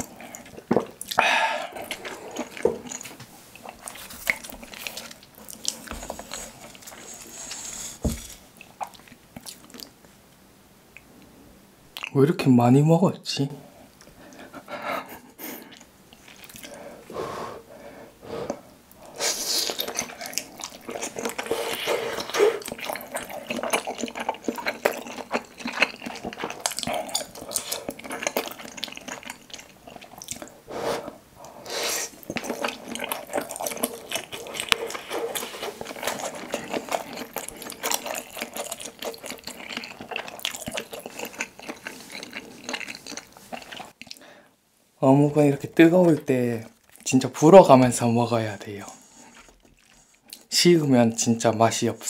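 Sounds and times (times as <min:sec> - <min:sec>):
wet squishy chewing: 0:19.6 - 0:30.5, 0:32.1 - 0:44.2.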